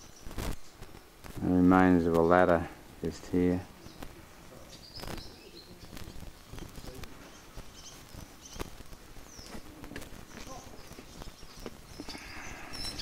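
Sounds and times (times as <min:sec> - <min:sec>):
faint high bird chirps: 0:04.6 - 0:08.7, 0:09.3 - 0:13.0
footsteps on stony ground: 0:04.8 - 0:12.2.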